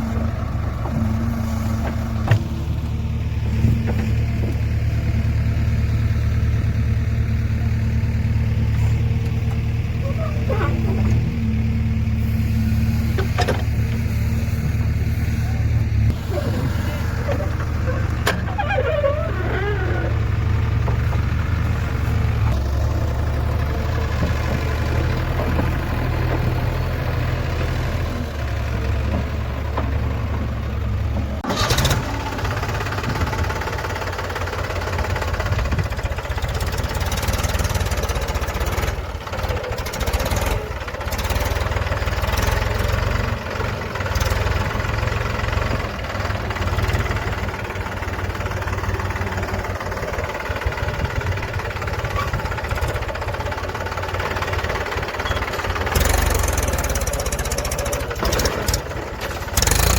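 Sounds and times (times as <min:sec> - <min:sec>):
diesel engine running: 0:00.0 - 0:59.9
engine knocking: 0:16.8 - 0:59.9.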